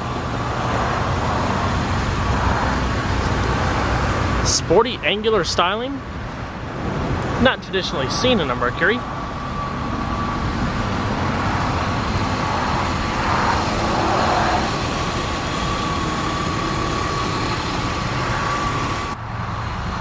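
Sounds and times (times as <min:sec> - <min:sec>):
vehicle passing: 0:06.8 - 0:20.0.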